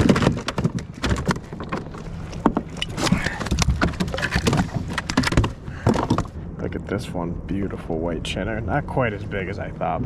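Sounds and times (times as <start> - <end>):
knocks and clicks on a boat: 0.0 - 6.4.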